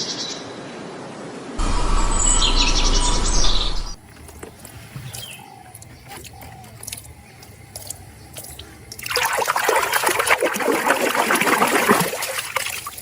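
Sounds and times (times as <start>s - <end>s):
water running and splashing: 4.0s - 13.0s.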